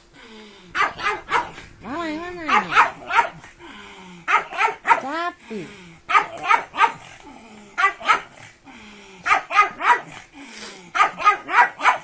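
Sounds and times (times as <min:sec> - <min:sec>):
dog barking: 0:00.8 - 0:01.6, 0:02.4 - 0:03.5, 0:04.3 - 0:05.1, 0:06.1 - 0:07.1, 0:07.8 - 0:08.4, 0:09.2 - 0:10.2, 0:10.9 - 0:12.0.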